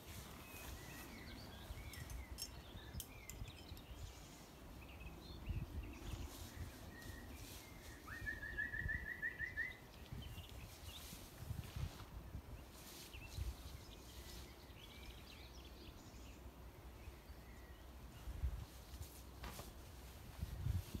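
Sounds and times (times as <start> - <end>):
wind rumble on microphone: 0.0 - 14.4, 18.1 - 19.0, 19.9 - 21.0
small songbirds chirping: 0.0 - 21.0.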